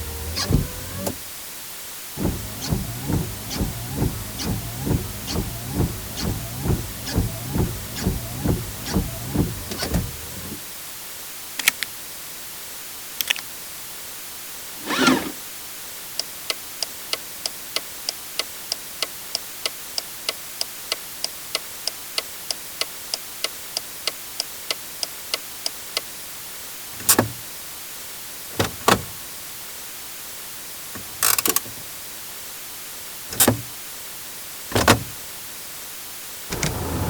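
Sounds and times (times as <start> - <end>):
heavy thunks: 0.0 - 1.2, 2.2 - 10.6, 28.6 - 29.3, 33.3 - 33.7, 34.7 - 35.2, 36.5 - 37.0.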